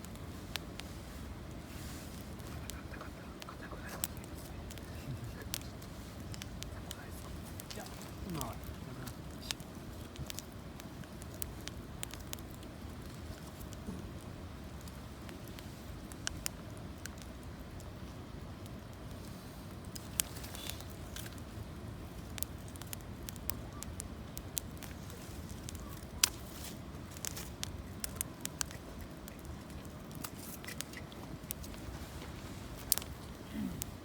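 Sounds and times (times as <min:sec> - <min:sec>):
campfire crackling: 0:00.0 - 0:34.0
sharp fire pops: 0:00.0 - 0:34.0.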